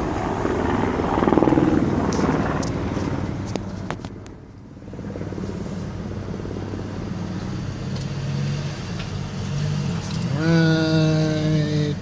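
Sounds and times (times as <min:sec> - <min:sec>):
helicopter rotor flutter: 0:00.0 - 0:07.3.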